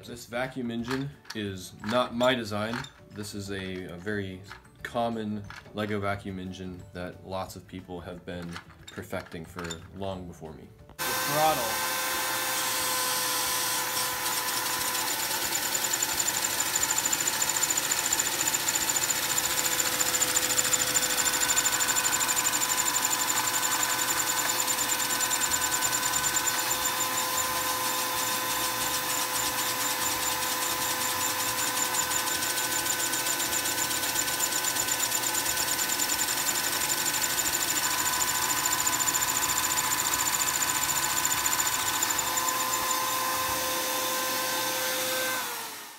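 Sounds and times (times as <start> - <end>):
plastic engine parts clattering: 8.3 - 10.0
vacuum cleaner motor whining: 11.0 - 45.9.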